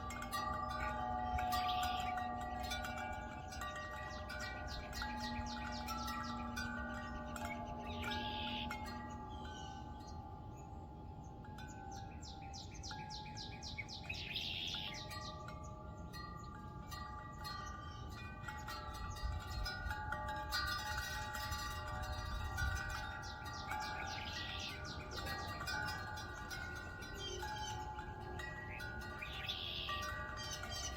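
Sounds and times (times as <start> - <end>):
bird trilling: 0.0 - 10.2, 12.0 - 15.8, 22.9 - 30.9
wind chimes ringing: 0.0 - 30.9
wind rumbling on microphone: 15.0 - 30.9.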